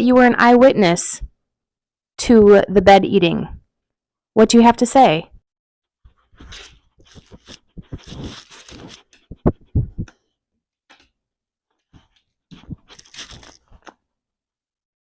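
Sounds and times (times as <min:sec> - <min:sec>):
dog crunching and rustling: 0:06.2 - 0:09.5, 0:12.0 - 0:14.0.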